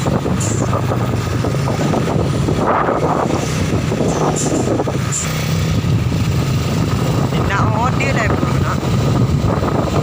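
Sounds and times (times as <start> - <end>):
truck engine droning: 0.0 - 10.0.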